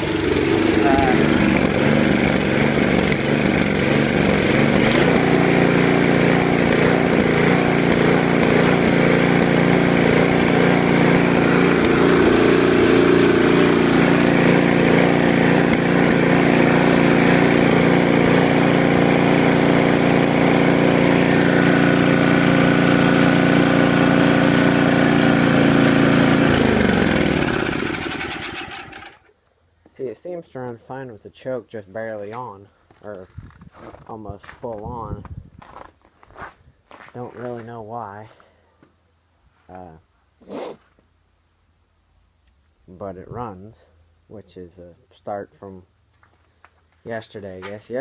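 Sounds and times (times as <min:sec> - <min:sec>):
engine winding down: 0:00.0 - 0:29.2
small gasoline engines running: 0:00.0 - 0:29.2.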